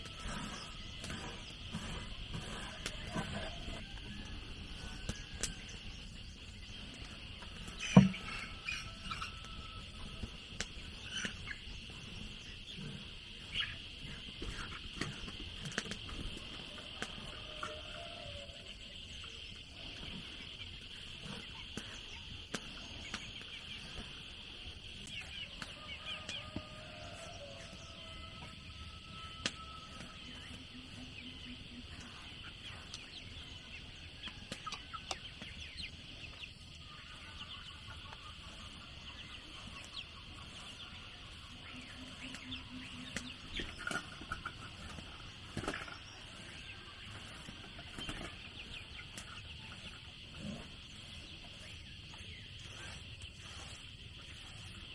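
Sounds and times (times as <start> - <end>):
chickens clucking: 0.1 - 54.9.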